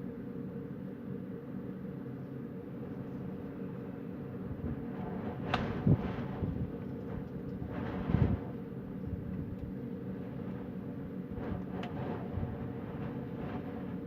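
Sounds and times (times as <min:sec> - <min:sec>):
wind buffeting microphone: 0:04.4 - 0:10.7, 0:11.3 - 0:14.0
wind rumbling: 0:04.5 - 0:10.7.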